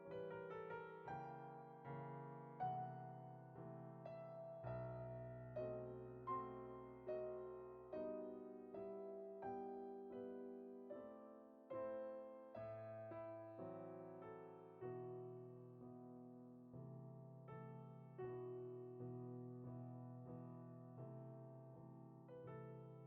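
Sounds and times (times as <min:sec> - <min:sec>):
soft slow piano: 0:00.0 - 0:23.0.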